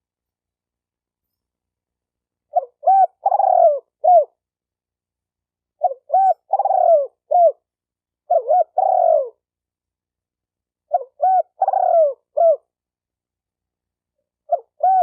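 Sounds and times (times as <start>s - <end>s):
dove cooing: 2.5s - 4.4s, 5.8s - 7.7s, 8.3s - 9.4s, 10.9s - 12.7s, 14.4s - 15.0s.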